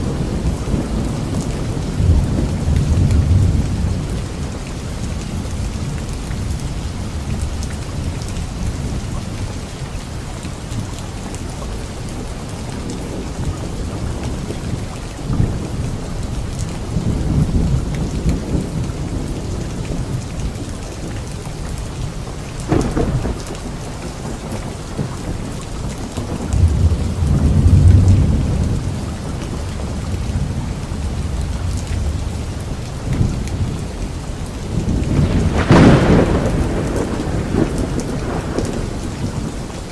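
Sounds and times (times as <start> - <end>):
thunder rumbling: 0.0 - 9.2, 12.2 - 39.9
rain hissing: 15.3 - 39.9
sharp thunderclap: 22.7 - 33.7, 34.6 - 39.6.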